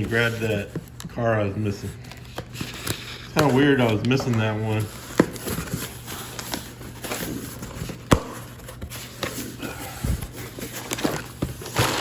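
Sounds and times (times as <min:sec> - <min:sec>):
plastic packaging taps and rustles: 0:03.4 - 0:09.4.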